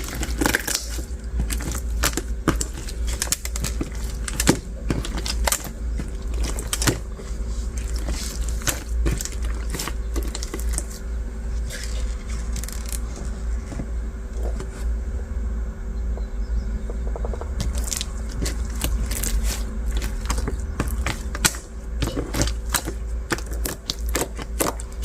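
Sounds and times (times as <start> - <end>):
low hum: 0.0 - 25.0
beaded slime crackling: 17.6 - 25.0.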